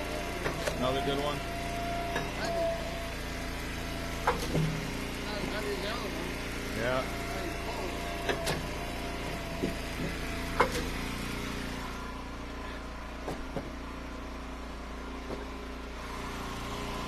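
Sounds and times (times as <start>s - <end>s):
log splitter engine running: 0.0s - 17.0s
sharp knocks: 9.5s - 10.9s.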